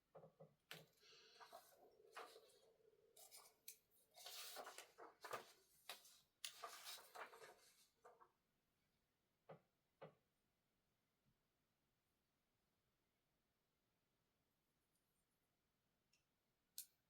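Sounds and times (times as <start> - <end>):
scraping and rustling on a desk: 0.8 - 8.2.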